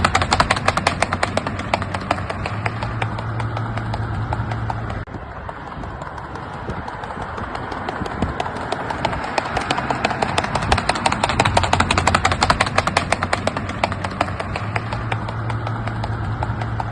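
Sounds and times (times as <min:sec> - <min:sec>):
horse hooves beating: 0:00.0 - 0:16.9.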